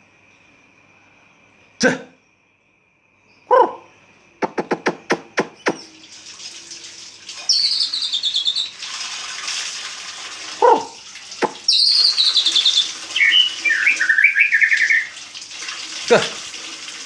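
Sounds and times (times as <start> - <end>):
bird calling: 3.5 - 6.0, 7.4 - 8.8, 10.6 - 15.2
high descending twittering trill: 7.5 - 8.7.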